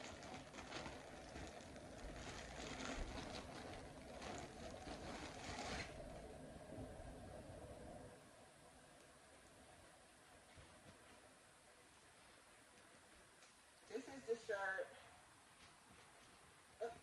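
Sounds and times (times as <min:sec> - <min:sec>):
plastic bag rustling and crackling: 0:00.0 - 0:06.3.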